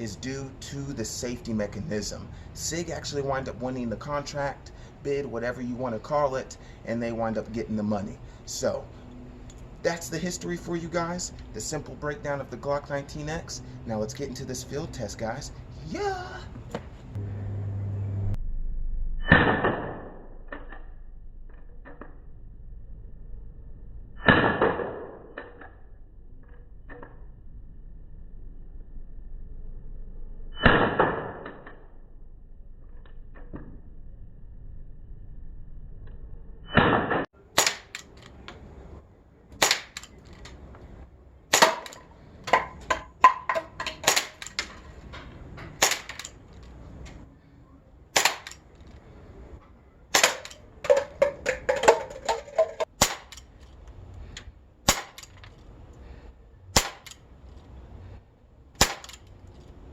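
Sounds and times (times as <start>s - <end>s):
bb pistol shots cracking: 37.5s - 38.2s, 39.6s - 40.2s, 41.5s - 42.8s, 43.7s - 44.8s, 45.8s - 46.4s, 48.2s - 48.6s, 50.1s - 52.0s, 52.8s - 53.5s, 54.9s - 55.4s, 56.8s - 57.2s, 58.8s - 59.2s.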